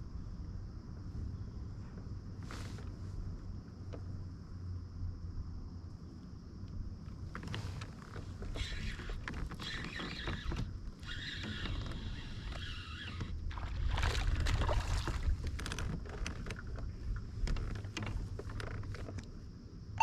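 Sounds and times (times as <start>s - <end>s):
water splashing around kayak: 7.6s - 19.1s.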